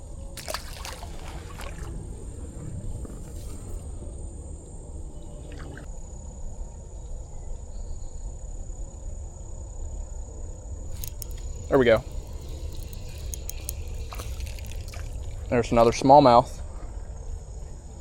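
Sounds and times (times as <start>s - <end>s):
high insect whine: 0.0s - 18.0s
rush of moving water: 0.4s - 3.6s
faint clicks: 10.9s - 16.0s.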